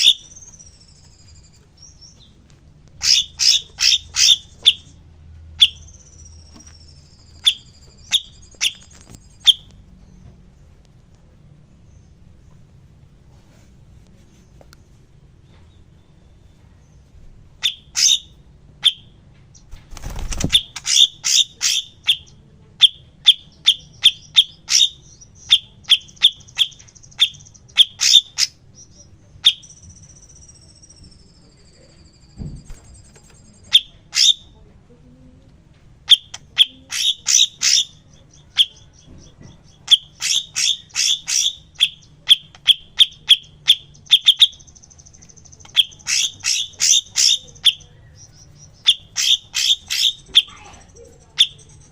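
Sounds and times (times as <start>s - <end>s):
buzzy bird trills: 3.0s - 5.0s, 19.6s - 34.5s, 36.1s - 51.9s.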